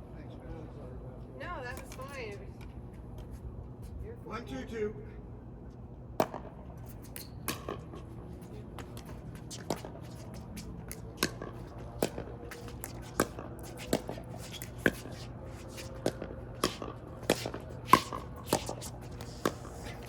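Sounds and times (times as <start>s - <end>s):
paddles hitting pickleball: 6.2s - 8.0s, 8.7s - 20.0s.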